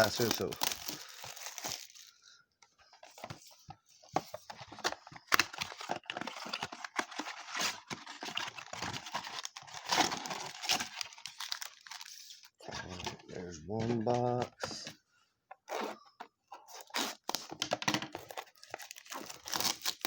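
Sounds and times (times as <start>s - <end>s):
plastic wrap crinkling and tearing: 0.0s - 2.2s, 4.7s - 12.6s, 16.7s - 20.0s.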